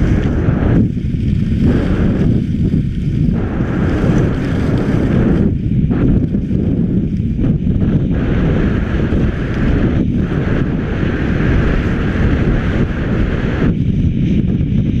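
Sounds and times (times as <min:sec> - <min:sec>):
skis sliding on hard snow: 0:00.0 - 0:07.7
wind buffeting microphone: 0:00.0 - 0:15.0.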